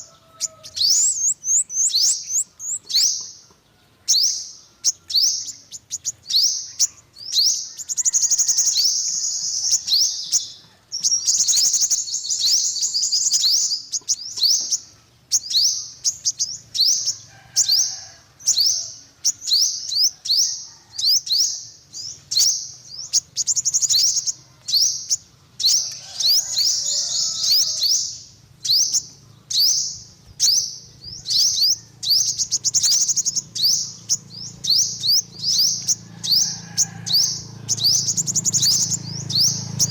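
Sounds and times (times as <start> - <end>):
bird chirping and trilling: 0.0 - 39.9.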